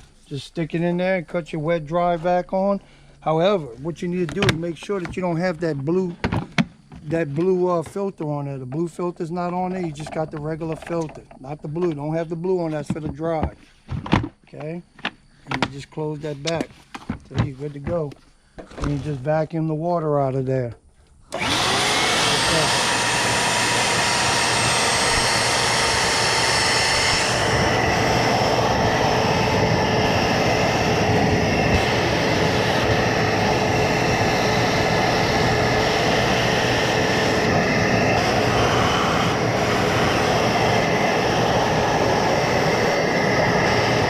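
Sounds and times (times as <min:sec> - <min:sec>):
shop vacuum sucking water: 0:21.3 - 0:44.0.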